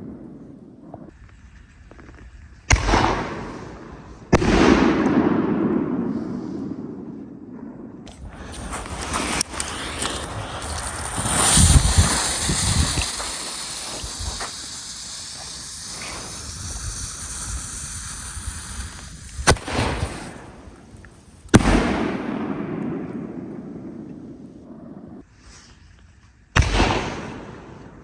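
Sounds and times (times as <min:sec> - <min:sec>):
firework shells exploding: 0:02.2 - 0:25.2, 0:26.6 - 0:28.0
steady hiss: 0:08.2 - 0:23.6.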